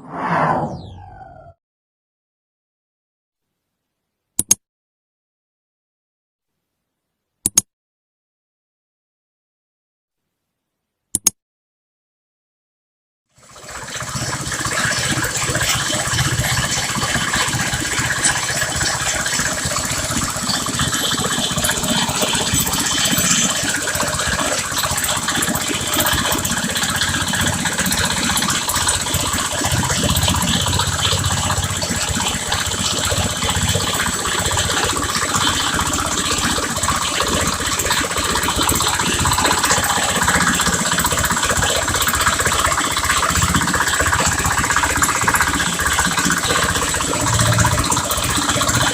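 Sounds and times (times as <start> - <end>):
drilling rig engine hum: 13.7 - 48.9.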